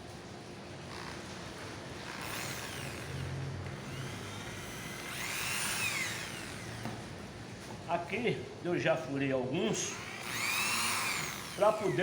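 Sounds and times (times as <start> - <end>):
electric drill whining: 0.9 - 7.0, 9.8 - 12.0.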